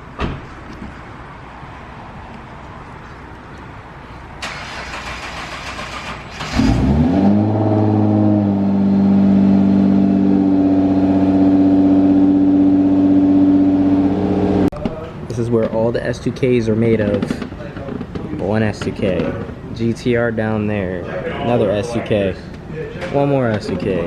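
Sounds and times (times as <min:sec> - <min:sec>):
car engine cranking and idling: 0:04.4 - 0:14.7.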